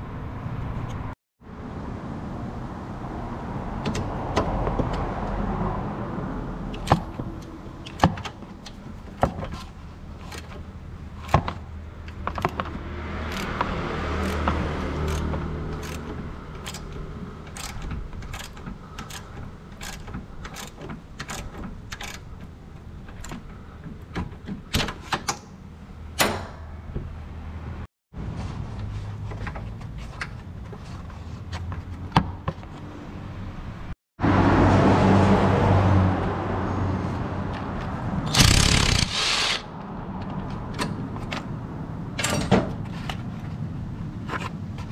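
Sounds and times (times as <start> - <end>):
hand tools clicking and knocking: 6.7 - 25.5, 38.3 - 39.6.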